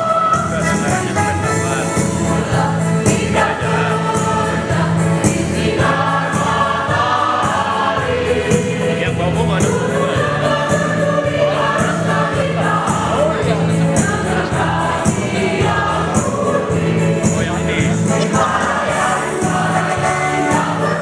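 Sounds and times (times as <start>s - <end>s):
accompaniment with steady beat: 0.0s - 21.0s
mixed choir singing a march: 0.0s - 21.0s.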